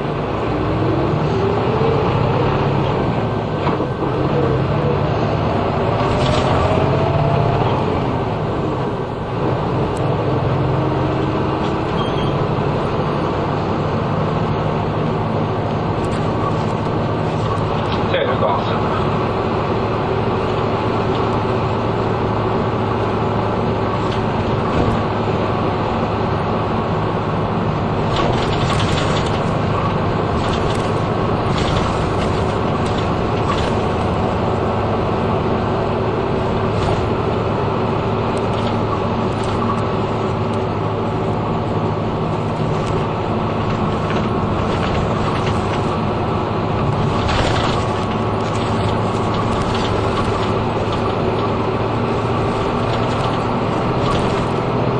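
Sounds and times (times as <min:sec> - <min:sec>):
bus engine humming: 0:00.0 - 0:54.9
road noise: 0:00.0 - 0:54.9
cabin rattles and clicks: 0:28.1 - 0:34.0.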